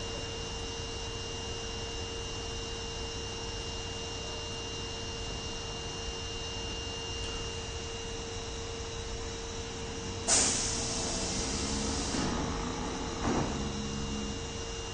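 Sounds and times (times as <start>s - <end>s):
electrical hum: 8.7s - 14.9s
thin high whine: 9.9s - 14.9s.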